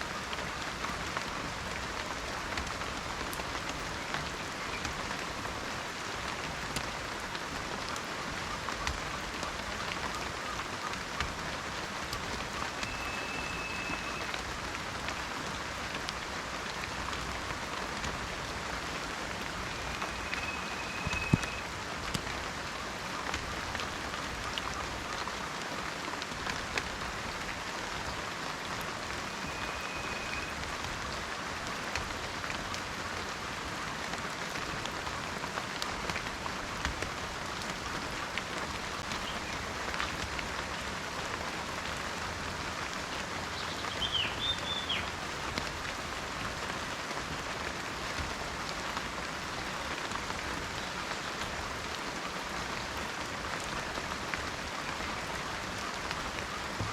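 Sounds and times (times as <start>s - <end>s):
rain falling in a forest: 0.0s - 56.9s
faint high whistle: 12.8s - 14.4s, 19.7s - 21.7s, 29.3s - 30.6s.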